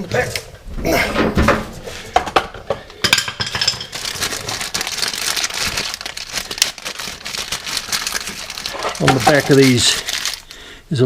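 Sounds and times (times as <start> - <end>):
metal tools clinking and scraping: 3.0 - 4.0, 8.7 - 10.0.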